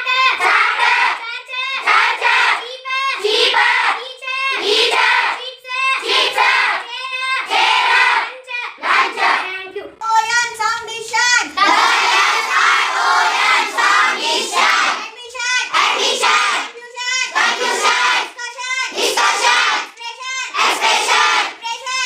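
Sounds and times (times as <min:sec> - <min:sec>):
children chanting: 0:00.0 - 0:09.5, 0:11.1 - 0:22.0.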